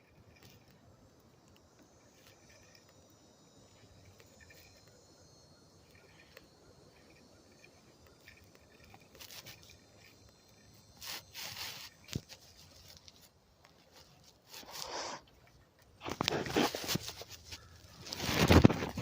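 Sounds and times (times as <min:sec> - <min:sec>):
insects chirring: 0:00.0 - 0:19.0
rustling scraping handling noises: 0:07.0 - 0:19.0.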